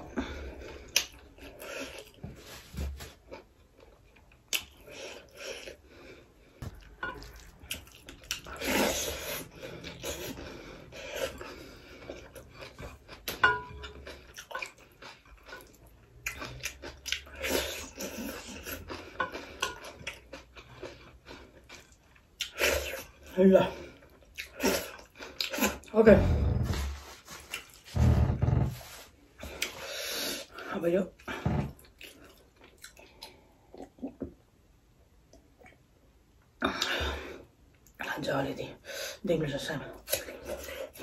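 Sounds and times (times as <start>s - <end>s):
person chewing food: 0.0s - 25.9s, 26.5s - 28.0s, 29.4s - 30.6s, 31.2s - 34.5s.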